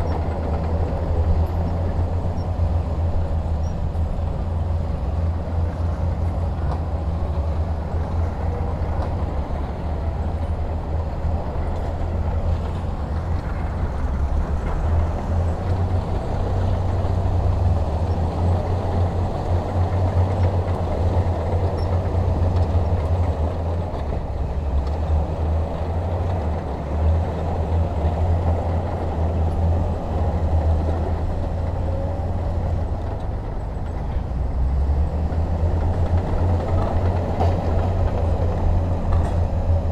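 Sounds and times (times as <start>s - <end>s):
heavy diesel engine rumbling: 0.0s - 39.9s.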